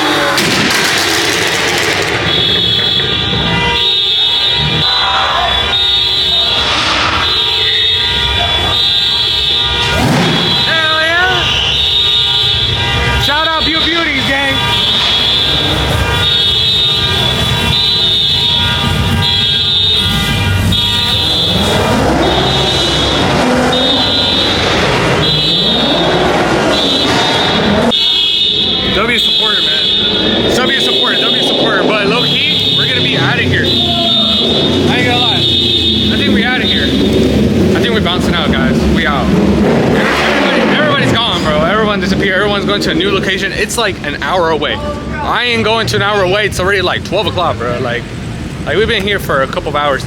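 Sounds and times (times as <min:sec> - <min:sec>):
cars: 0:00.0 - 0:50.0
crowd noise: 0:00.0 - 0:50.0
vehicle horn blasts: 0:01.9 - 0:37.7.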